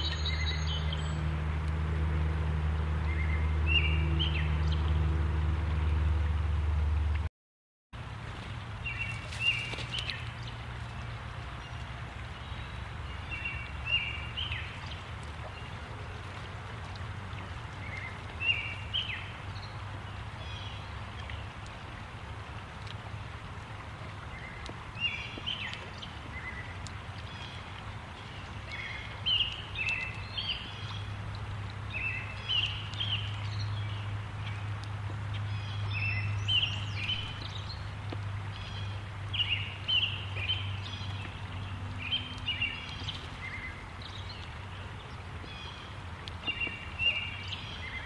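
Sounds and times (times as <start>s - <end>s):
bird chirping: 0.0s - 1.2s
low hum: 0.0s - 7.3s.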